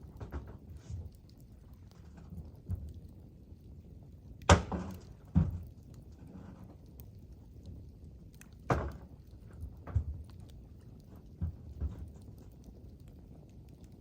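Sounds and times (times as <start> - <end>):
low steady background noise: 0.0 - 14.0.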